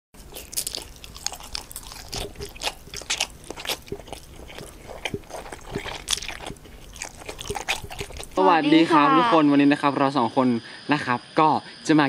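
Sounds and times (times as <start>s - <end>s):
chewing and biting: 0.2s - 8.4s
crunchy crackles: 0.2s - 8.4s.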